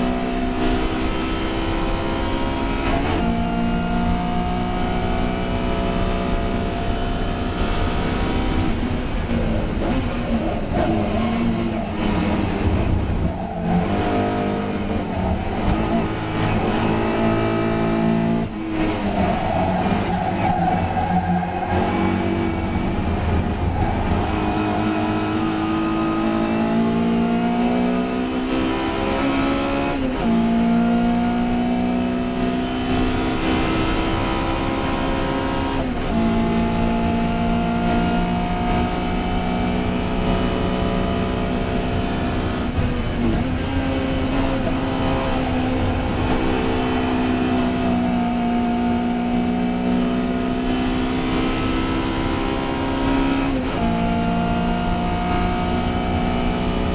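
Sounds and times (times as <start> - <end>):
race car engine running hard: 0.0 - 56.9.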